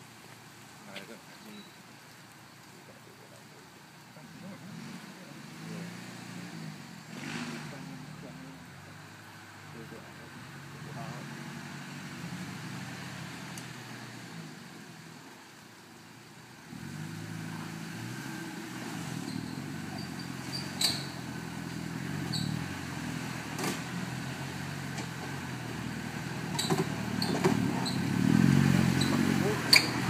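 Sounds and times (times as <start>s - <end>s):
vehicle engine at low revs: 0.0s - 30.0s
sharp knocks and clatters: 26.5s - 27.9s.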